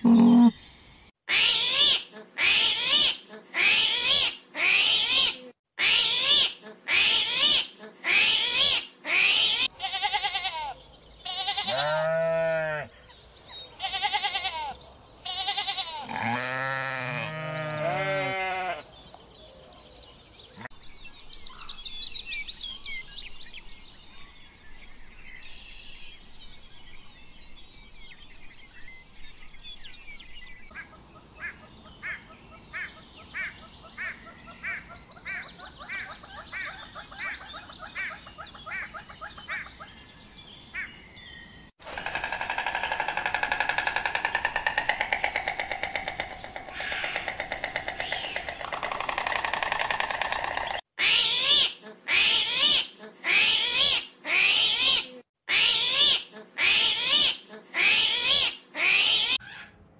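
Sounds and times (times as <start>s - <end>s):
rising and falling animal calls: 41.8s - 59.7s.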